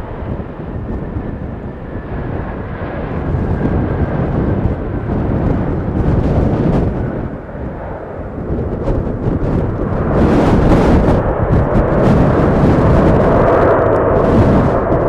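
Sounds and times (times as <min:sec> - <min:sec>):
engine whine: 0:00.0 - 0:15.0
jet engines rumbling: 0:00.0 - 0:15.0
wind noise on microphone: 0:00.0 - 0:15.0.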